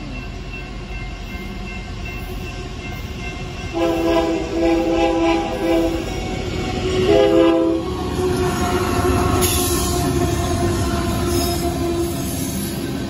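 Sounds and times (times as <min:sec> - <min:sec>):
locomotive rumbling past: 0:00.0 - 0:13.0
locomotive air horn blasts: 0:03.7 - 0:06.2, 0:07.0 - 0:12.2.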